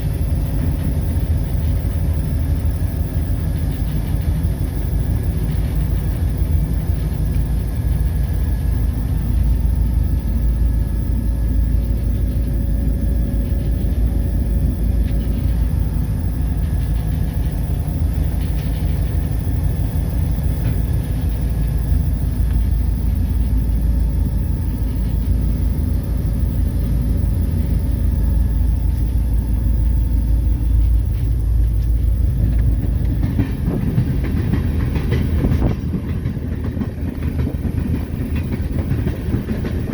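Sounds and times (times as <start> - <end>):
diesel locomotive rumble: 0.0 - 39.9
faint steady tone: 0.0 - 39.9
wheels on rails: 27.5 - 39.9.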